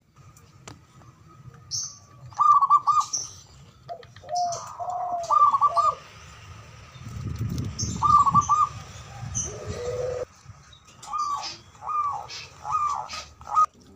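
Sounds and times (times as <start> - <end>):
small birds chirping: 0.4 - 13.7
doves cooing: 2.3 - 3.2, 3.9 - 6.1, 7.9 - 10.3, 11.0 - 13.9.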